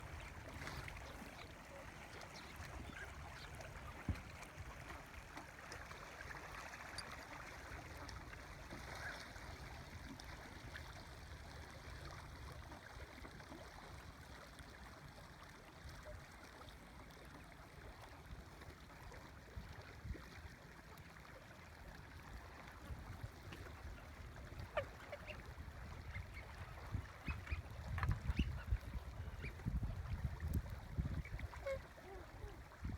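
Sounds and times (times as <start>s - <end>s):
water: 0.0s - 32.9s
wind: 0.0s - 32.9s
swans honking: 24.6s - 26.2s.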